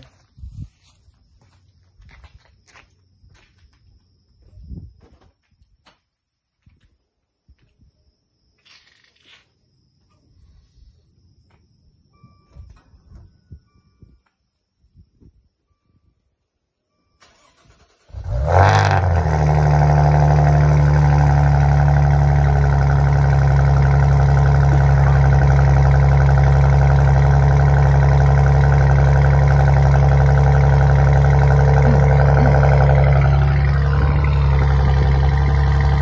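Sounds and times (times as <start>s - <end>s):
car engine starting and idling: 17.1s - 36.0s.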